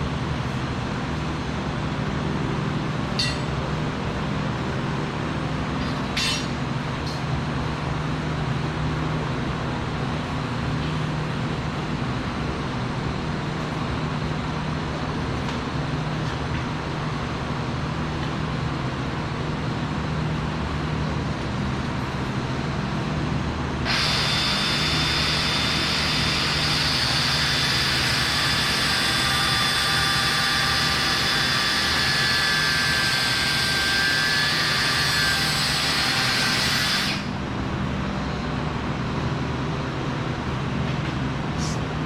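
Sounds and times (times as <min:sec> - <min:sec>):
hissing power tool: 0:23.8 - 0:37.4.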